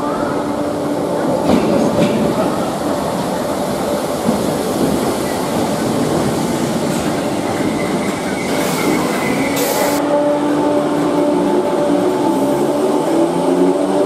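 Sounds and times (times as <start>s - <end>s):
train wheels rumbling: 0.0s - 14.0s
high wheel squeal: 7.5s - 10.0s
hiss: 8.4s - 10.0s.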